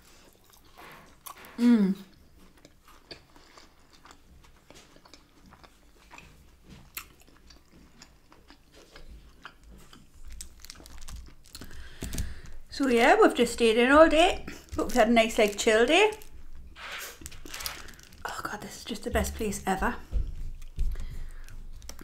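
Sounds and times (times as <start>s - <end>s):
person chewing food: 0.0s - 12.7s, 20.3s - 22.0s
soft low thuds: 19.0s - 21.1s.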